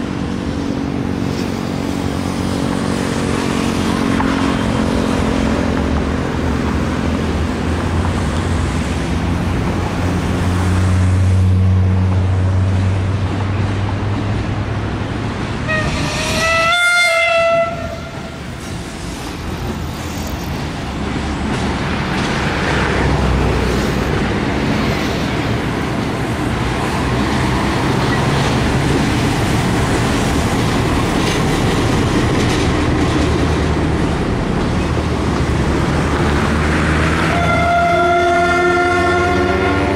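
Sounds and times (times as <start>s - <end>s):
diesel locomotive engine drone: 0.0s - 39.9s
train coaches rumbling on rails: 0.0s - 39.9s
train horn blast: 15.6s - 18.6s, 37.2s - 39.9s.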